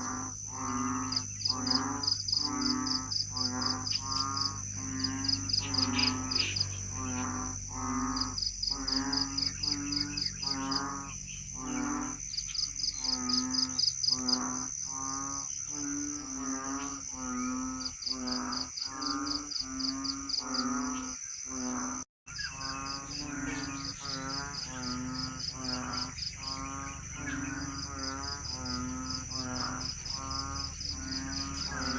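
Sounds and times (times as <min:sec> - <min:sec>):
high insect drone: 0:00.0 - 0:31.9.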